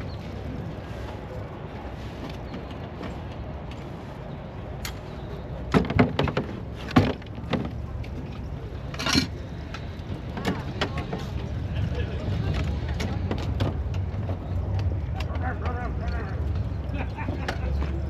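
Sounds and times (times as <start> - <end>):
outdoor background rumble: 0.0 - 18.0
sharp knocks and clanks: 5.7 - 7.8.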